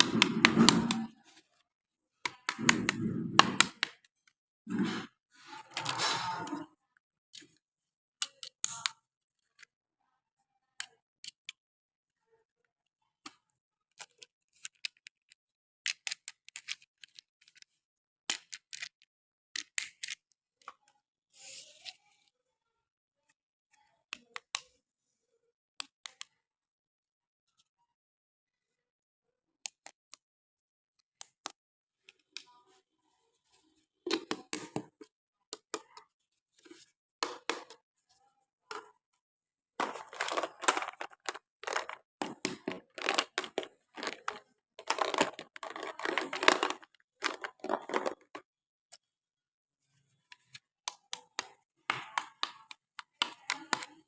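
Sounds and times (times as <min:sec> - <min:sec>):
sharp clicks of packaging: 0:39.8 - 0:48.4
packaging tearing and crinkling: 0:42.7 - 0:48.3.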